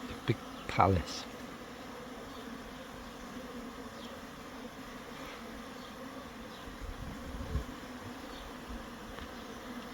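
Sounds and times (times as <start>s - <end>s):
honeybees buzzing: 0.0s - 9.9s.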